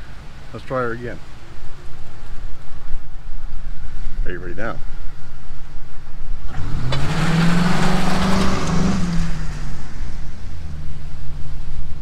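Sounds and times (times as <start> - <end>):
car engine revving: 6.4 - 12.0
tyres hissing on wet asphalt: 6.4 - 12.0.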